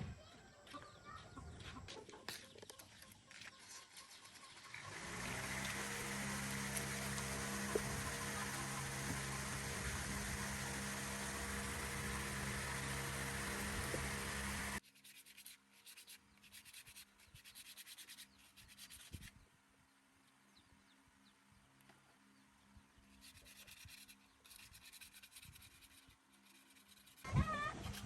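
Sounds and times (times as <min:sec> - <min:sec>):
rubbing and scraping strokes: 0:02.3 - 0:19.4, 0:23.0 - 0:28.0
loud machine noise: 0:04.8 - 0:14.8.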